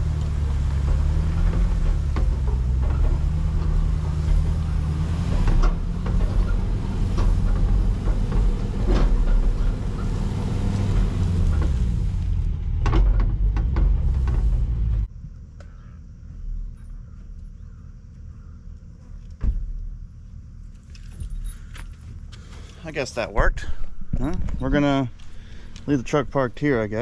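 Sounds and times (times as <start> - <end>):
vehicle engine under load: 0.0 - 15.2, 19.1 - 27.0
clanks and rattles: 0.0 - 15.8, 19.0 - 27.0
insects chirring: 15.1 - 27.0.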